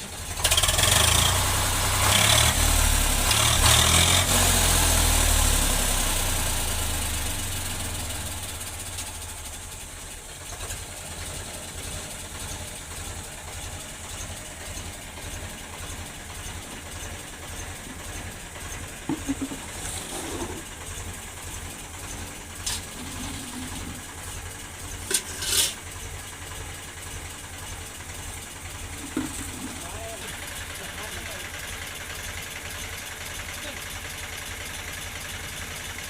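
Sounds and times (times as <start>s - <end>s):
tractor diesel engine idling: 0.0s - 36.0s.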